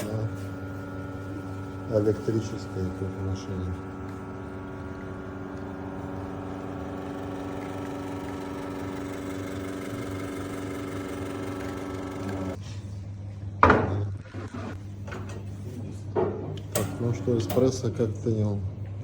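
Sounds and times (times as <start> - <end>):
espresso machine pump humming: 0.0 - 12.6, 16.6 - 18.1.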